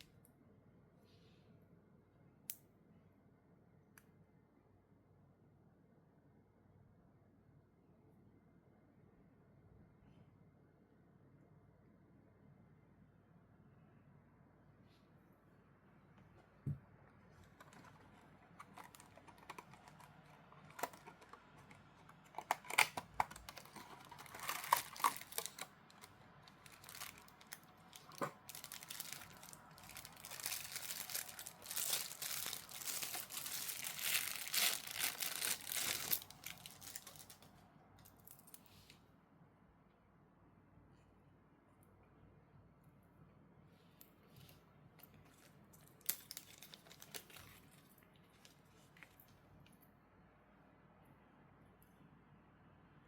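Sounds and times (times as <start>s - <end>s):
packaging crinkling and rustling: 17.3s - 37.5s, 45.2s - 49.3s
packaging clicks and taps: 17.4s - 37.4s.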